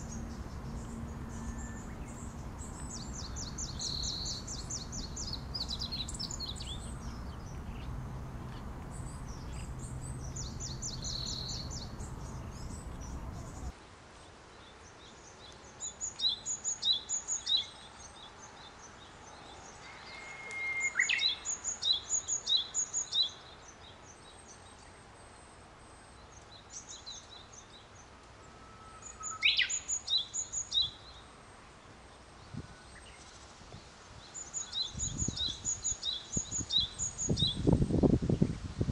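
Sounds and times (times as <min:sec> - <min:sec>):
low steady background rumble: 0:00.0 - 0:13.8
small songbird singing: 0:00.0 - 0:13.8, 0:15.0 - 0:24.9, 0:29.0 - 0:31.3, 0:34.2 - 0:38.6.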